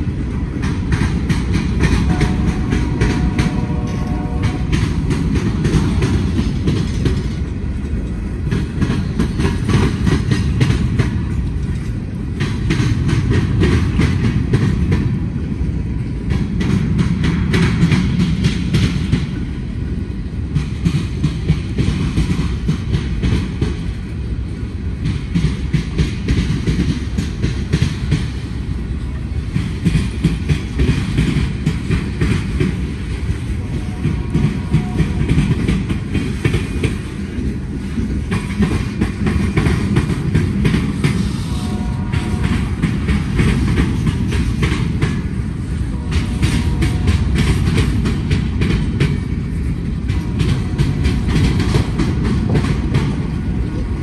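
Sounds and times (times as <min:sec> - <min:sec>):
freight train rumbling: 0:00.0 - 0:54.0
steel wheels clacking on rails: 0:00.0 - 0:54.0.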